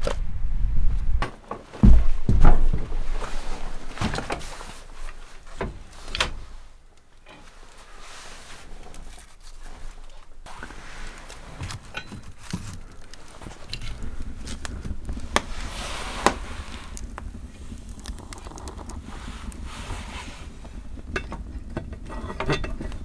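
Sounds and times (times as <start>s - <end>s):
low rumble: 0.0s - 3.4s
clicks and crinkling handling noises: 1.0s - 23.0s.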